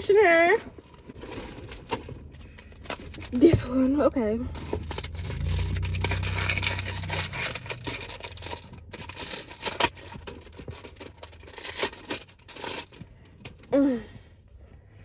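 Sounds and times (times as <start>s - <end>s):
packaging ripping and scratching: 0.7s - 3.6s, 4.6s - 13.0s.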